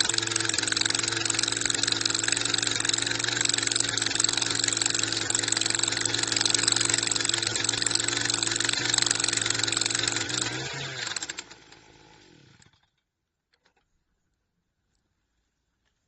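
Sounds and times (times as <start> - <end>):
drilling machine engine running: 0.0 - 12.7.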